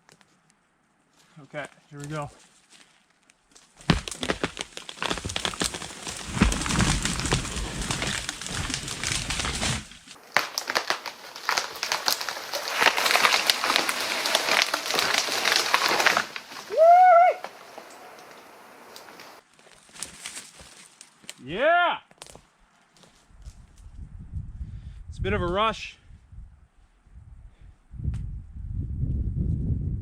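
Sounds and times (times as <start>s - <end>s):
branches crackling: 2.0s - 21.4s
tree trunk crashing down: 3.8s - 19.4s
wood cracking and snapping: 3.8s - 21.4s
person whooping: 16.7s - 17.6s.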